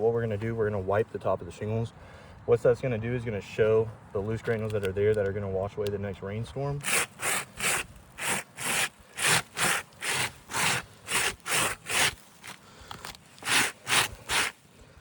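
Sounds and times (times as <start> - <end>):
rubbing roof shingles: 6.8 - 14.7.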